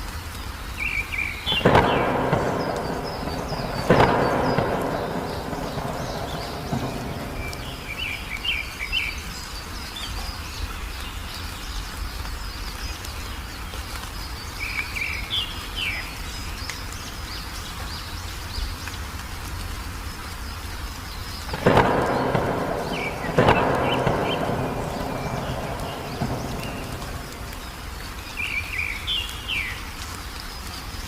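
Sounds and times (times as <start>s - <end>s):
small birds chirping: 0.3s - 31.0s
steady low rumble: 1.6s - 8.8s, 21.6s - 28.7s.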